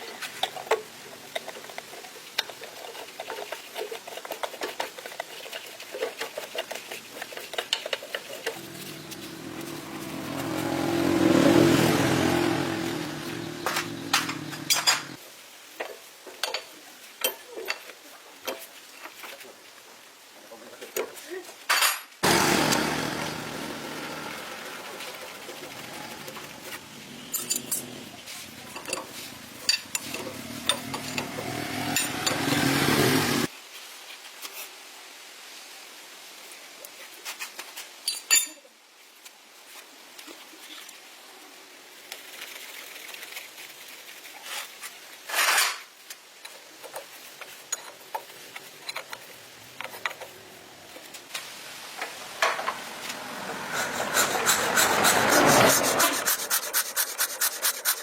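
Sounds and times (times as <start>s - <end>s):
hand scraping and rubbing strokes: 1.8s - 15.2s, 24.6s - 34.7s, 52.9s - 58.0s.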